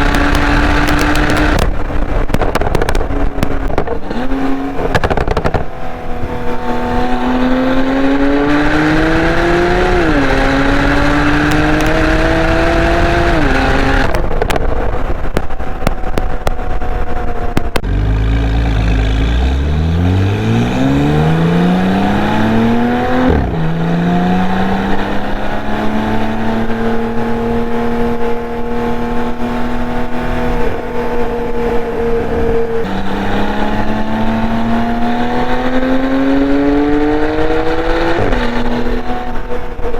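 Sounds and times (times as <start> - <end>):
exhaust crackles: 0.0 - 25.4
sports car engine accelerating: 0.0 - 39.9.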